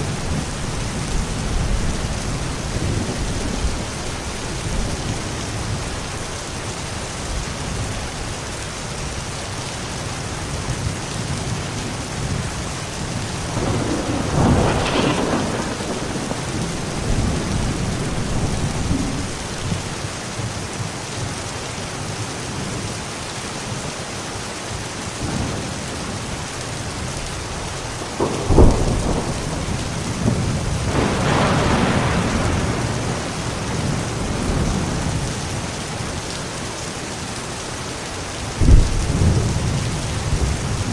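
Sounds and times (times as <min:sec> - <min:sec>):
thunder rumbling: 0:00.0 - 0:06.5, 0:10.8 - 0:20.0, 0:26.9 - 0:36.4, 0:38.4 - 0:40.9
steady rain: 0:00.0 - 0:40.9
sharp loud thunderclap: 0:13.5 - 0:19.4, 0:28.0 - 0:35.2, 0:38.6 - 0:40.9.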